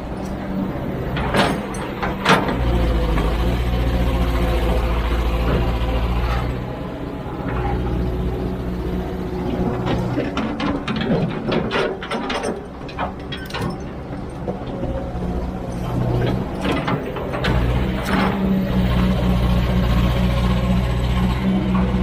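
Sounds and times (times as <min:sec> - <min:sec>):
excavator diesel engine running: 0:00.0 - 0:22.0
sharp metal clanks and knocks: 0:01.1 - 0:02.7, 0:09.6 - 0:14.7.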